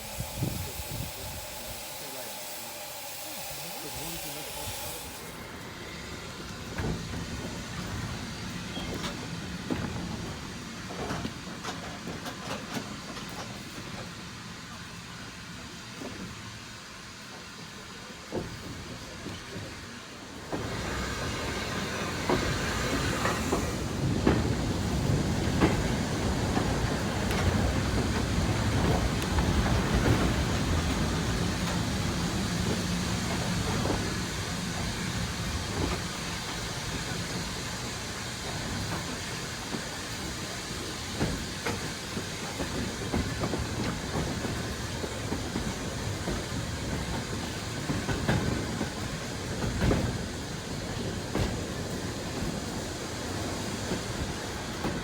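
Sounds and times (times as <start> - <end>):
train rumbling: 0.0 - 55.0
wheels clicking over rail joints: 3.9 - 14.1.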